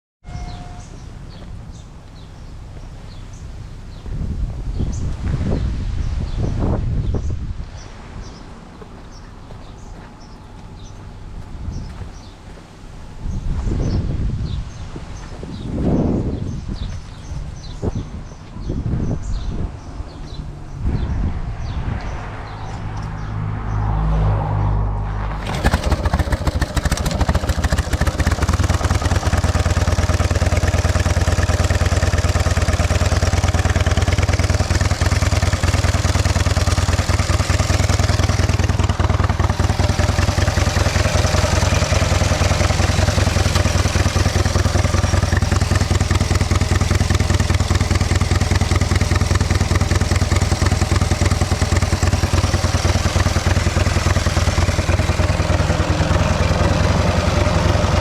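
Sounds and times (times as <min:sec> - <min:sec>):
motorcycle engine clattering: 0:25.3 - 0:58.0.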